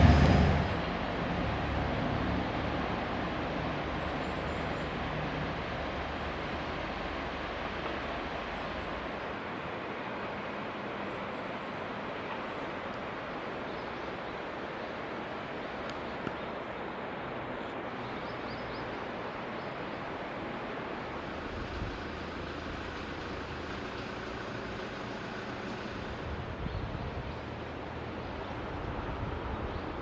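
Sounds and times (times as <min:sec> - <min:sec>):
train running rush: 0:00.0 - 0:09.0, 0:20.2 - 0:29.6
low train rumble: 0:00.0 - 0:15.8, 0:16.8 - 0:30.0.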